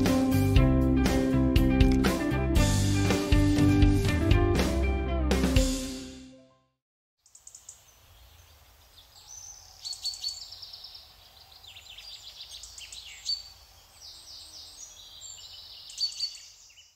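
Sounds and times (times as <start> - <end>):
birds chirping and trilling: 7.2 - 16.9.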